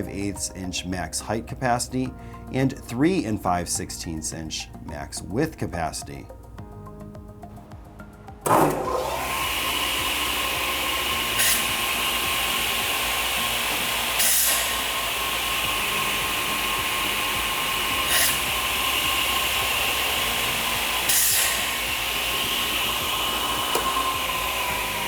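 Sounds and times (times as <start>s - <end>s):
miter saw motors whining: 8.5s - 25.0s
saw bursts: 8.5s - 25.0s.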